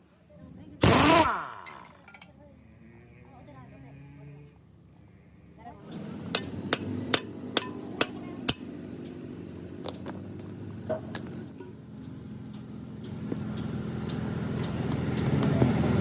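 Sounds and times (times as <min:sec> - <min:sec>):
steady engine hum: 0:03.3 - 0:16.0
light metallic clinks: 0:09.9 - 0:10.5.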